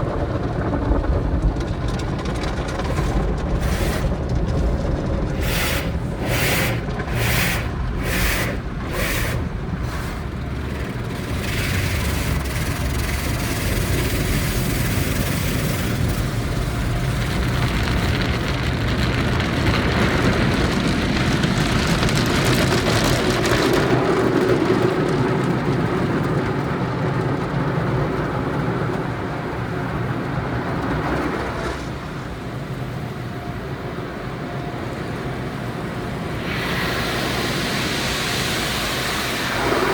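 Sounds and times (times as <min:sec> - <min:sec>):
heavy rush of car wash: 0:00.0 - 0:39.9
car wash slapping: 0:01.6 - 0:28.9.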